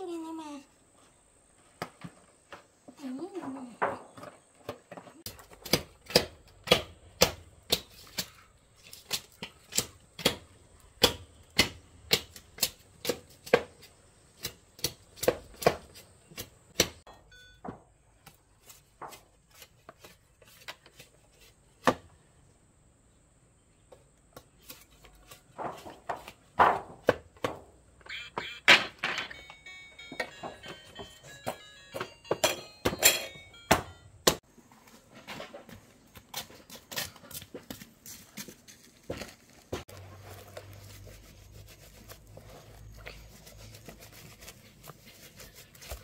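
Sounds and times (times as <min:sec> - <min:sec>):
sharp chopping strikes: 0:05.4 - 0:08.4, 0:11.0 - 0:13.8, 0:14.4 - 0:17.0.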